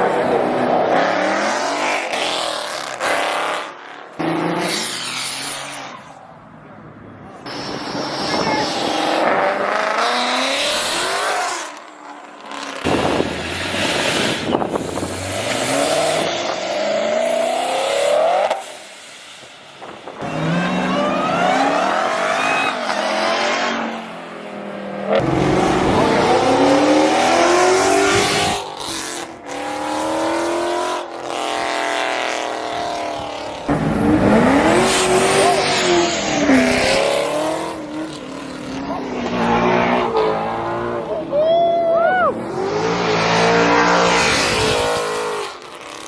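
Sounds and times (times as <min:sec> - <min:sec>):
car engines revving hard: 0:00.0 - 0:19.0, 0:19.8 - 0:41.3, 0:42.3 - 0:46.0
tire squeal: 0:04.6 - 0:06.2, 0:13.1 - 0:17.6, 0:20.2 - 0:23.8.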